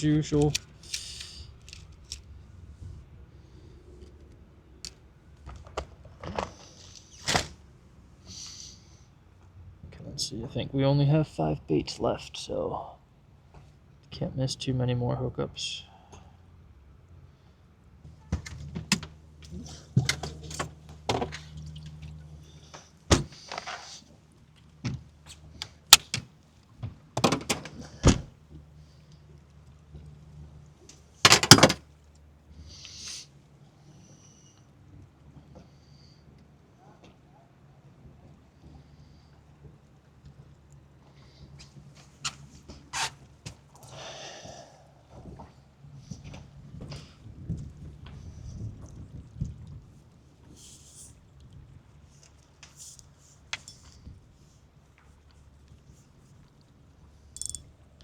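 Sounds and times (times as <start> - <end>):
brief hiss: 0.8 - 1.5
fishing tackle clicks and knocks: 25.6 - 26.3, 57.4 - 57.7
gear knocking and clunking: 31.3 - 31.8.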